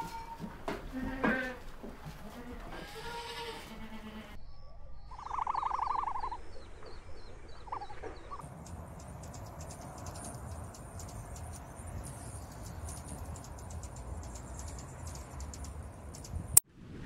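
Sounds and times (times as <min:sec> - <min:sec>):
faint high chirps: 0:04.4 - 0:16.6
hummingbirds chipping: 0:05.0 - 0:16.6.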